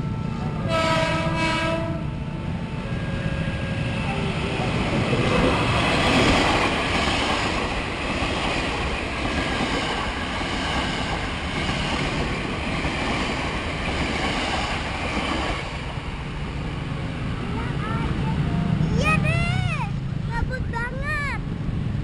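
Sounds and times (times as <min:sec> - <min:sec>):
electric train passing: 0:00.0 - 0:22.0.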